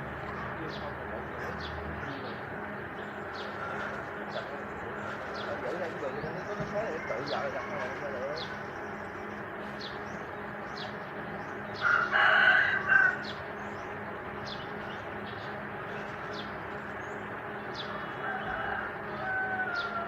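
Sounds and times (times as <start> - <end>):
rooster crowing: 6.6 - 8.6, 11.8 - 13.4, 17.9 - 20.0.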